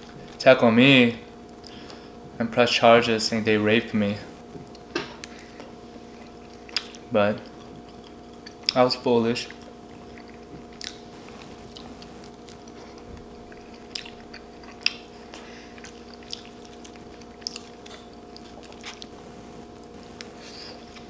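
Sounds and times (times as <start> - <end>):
electrical hum: 0.0 - 21.0
chewing and biting food: 6.1 - 8.8, 9.4 - 19.2.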